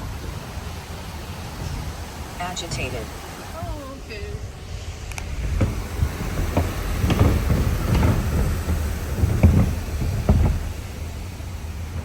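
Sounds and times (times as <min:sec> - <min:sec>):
car rolling along road: 0:00.0 - 0:12.0
sharp knocks and thumps: 0:04.3 - 0:12.0.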